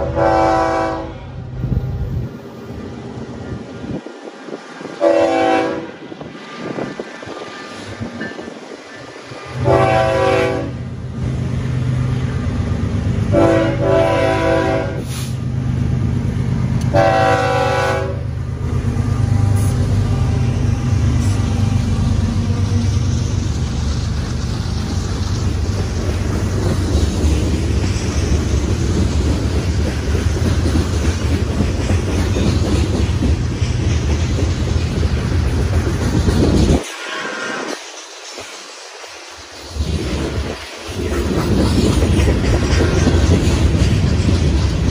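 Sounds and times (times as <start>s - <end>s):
train air horn blasts: 0.0s - 1.4s, 5.0s - 6.0s, 9.6s - 10.8s, 13.3s - 15.4s, 16.9s - 18.3s
diesel locomotive engine rumble: 0.0s - 44.9s
train cars rolling by: 0.0s - 44.9s.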